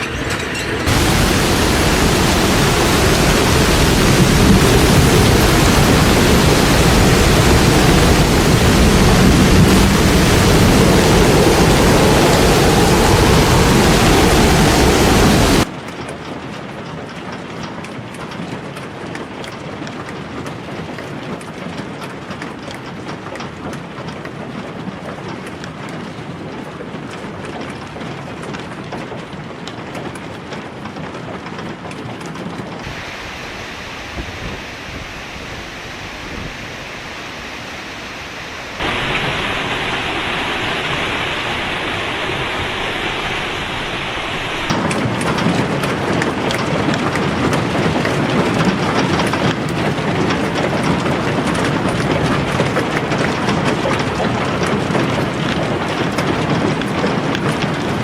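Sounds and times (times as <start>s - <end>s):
rushing water: 0.0s - 15.7s, 32.8s - 58.0s.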